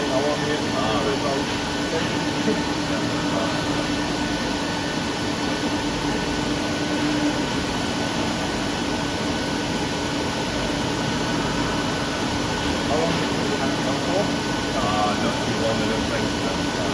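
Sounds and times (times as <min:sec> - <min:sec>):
machinery hum: 0:00.0 - 0:16.9.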